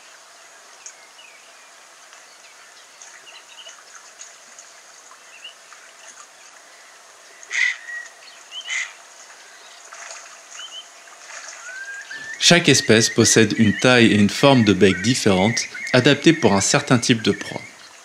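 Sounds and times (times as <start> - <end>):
shallow water washing: 2.9 - 18.0
short bird calls: 7.4 - 9.0, 10.5 - 17.9
faint bird chirps: 10.5 - 18.0.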